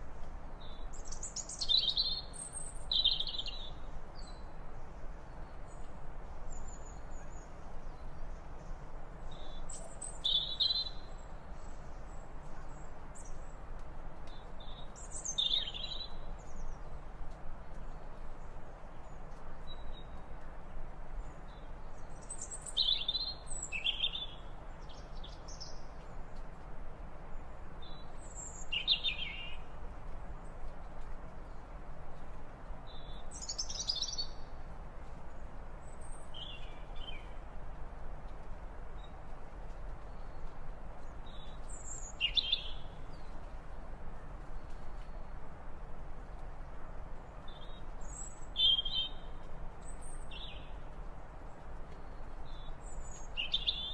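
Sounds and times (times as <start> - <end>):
steady background hiss: 0.0 - 53.9.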